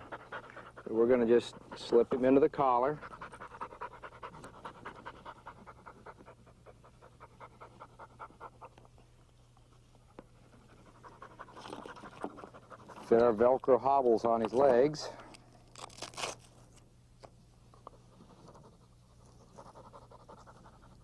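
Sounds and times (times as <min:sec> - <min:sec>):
dog panting rapidly: 0:00.0 - 0:09.0, 0:10.0 - 0:13.4, 0:18.2 - 0:21.0.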